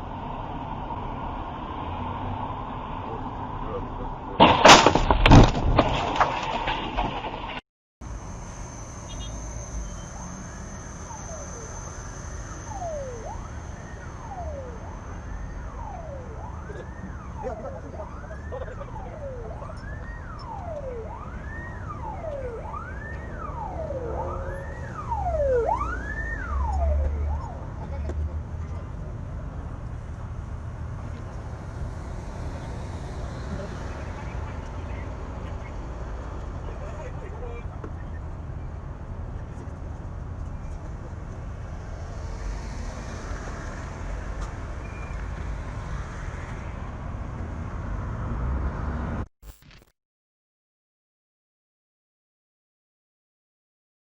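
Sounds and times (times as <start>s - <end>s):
vehicle rumble on road: 0.0s - 49.3s
siren wailing: 8.3s - 27.8s.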